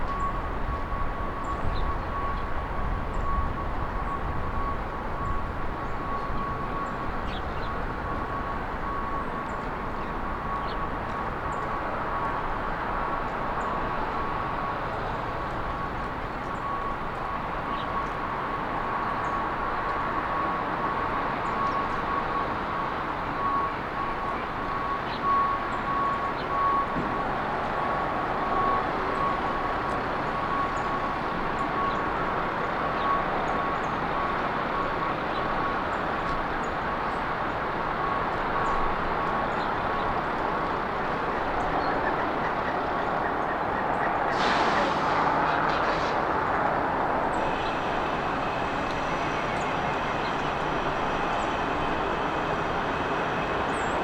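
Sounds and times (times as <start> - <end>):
road traffic noise: 0.0 - 54.0
thin steady tone: 46.9 - 54.0.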